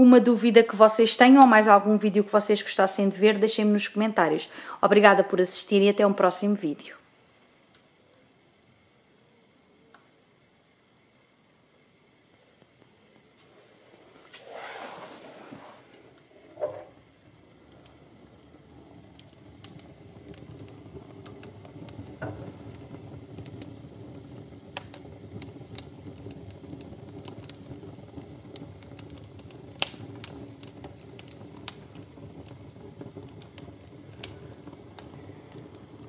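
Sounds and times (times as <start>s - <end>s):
wood fire crackling and popping: 12.3s - 36.0s.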